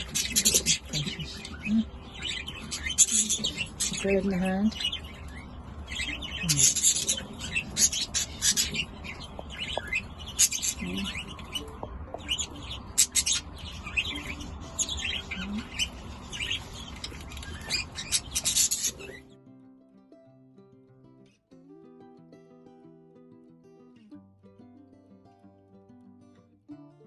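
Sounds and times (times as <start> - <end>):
budgerigars chirping: 0.0 - 19.2.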